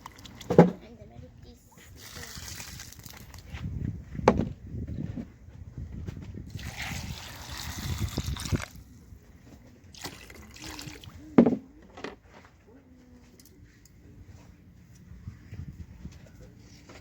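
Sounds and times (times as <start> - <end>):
water pouring and splashing: 0.0 - 0.6, 2.0 - 3.4, 6.5 - 8.8, 9.9 - 11.2.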